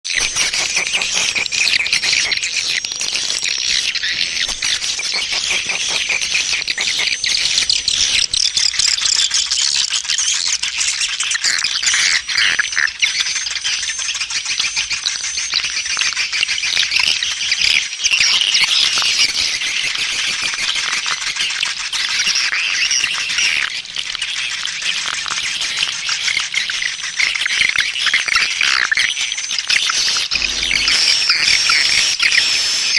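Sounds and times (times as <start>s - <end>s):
swiftlets chirping and clicking: 0.1s - 9.4s.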